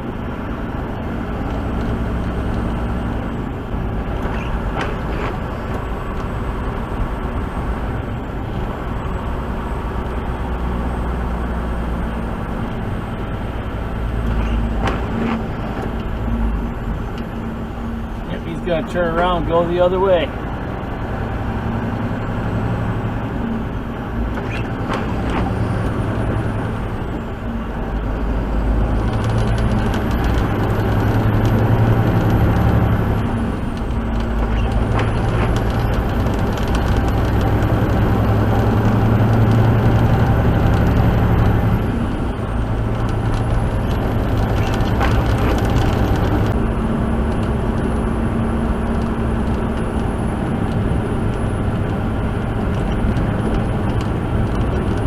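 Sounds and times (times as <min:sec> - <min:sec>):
truck diesel engine under load: 0:00.0 - 0:55.0.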